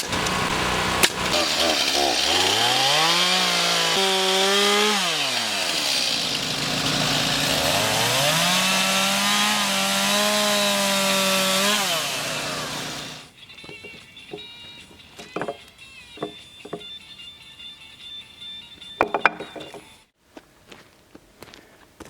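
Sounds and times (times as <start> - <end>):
chainsaw revving: 0.0 - 13.3.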